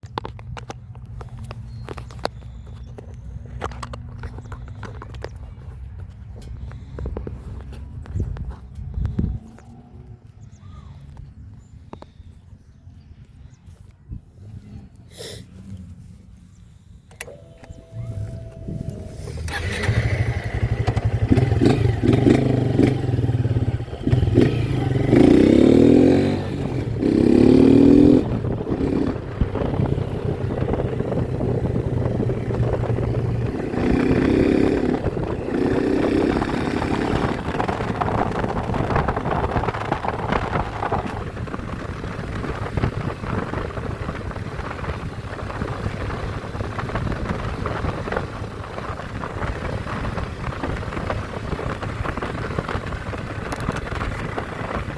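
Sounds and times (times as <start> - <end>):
motorcycle engine revving: 17.2 - 54.9.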